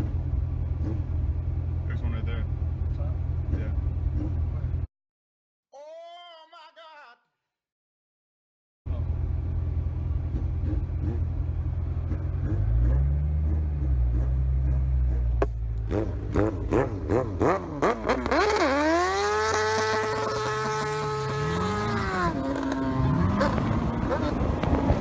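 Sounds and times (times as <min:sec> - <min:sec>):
motorcycle engine revving: 0:00.0 - 0:04.9, 0:10.1 - 0:25.0.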